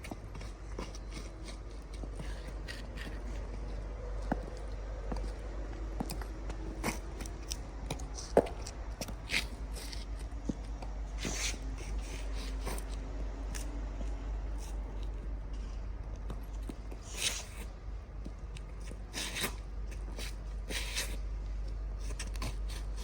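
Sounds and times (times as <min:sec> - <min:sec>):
boot heels clicking on concrete: 0:00.0 - 0:11.8
soles scuffing on grit: 0:00.0 - 0:17.8
steady low hum: 0:00.0 - 0:23.0.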